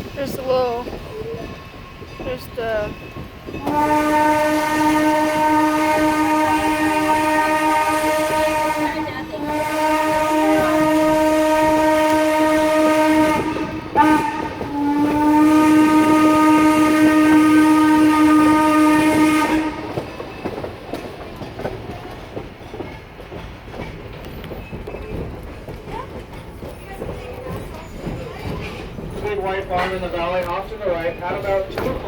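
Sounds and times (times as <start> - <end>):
train running on rails: 0.0 - 32.0
steam locomotive whistle: 3.6 - 20.2.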